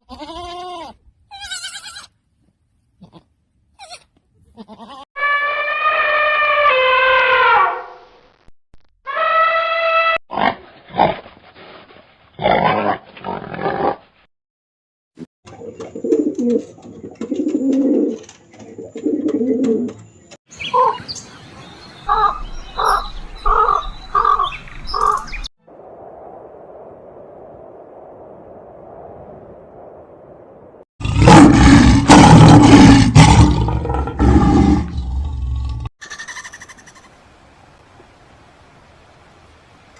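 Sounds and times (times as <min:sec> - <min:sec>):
goat bleats: 0:00.0 - 0:02.2, 0:03.0 - 0:05.0, 0:36.0 - 0:37.0.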